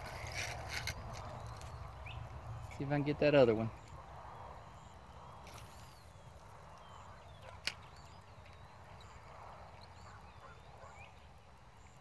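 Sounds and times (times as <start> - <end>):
faint bird chirps: 3.6 - 12.0.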